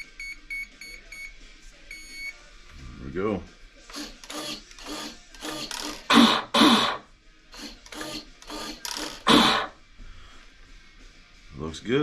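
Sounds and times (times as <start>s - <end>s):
short mechanical buzzes: 3.9s - 7.0s, 7.6s - 9.8s.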